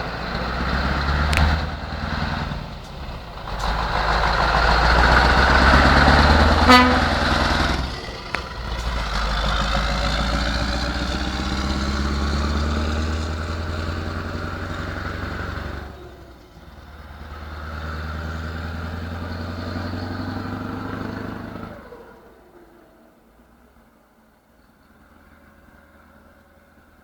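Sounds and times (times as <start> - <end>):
diesel truck engine pulling under load: 0.0 - 24.0.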